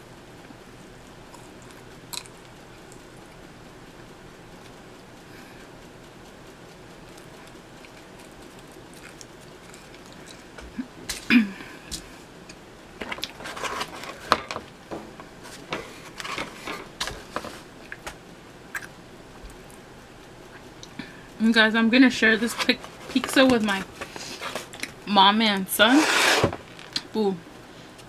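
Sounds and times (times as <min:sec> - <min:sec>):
wet chewing mouth clicks: 0:18.7 - 0:19.0.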